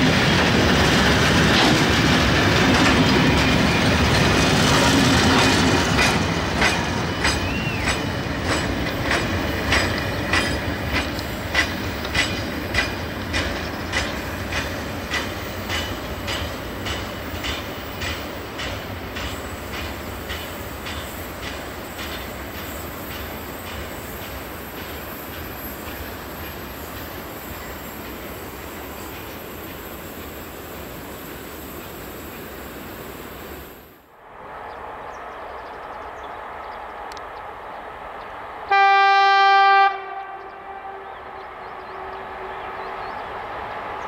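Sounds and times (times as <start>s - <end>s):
train rumble: 0.0s - 44.0s
wheel clacks over rail joints: 0.3s - 27.1s.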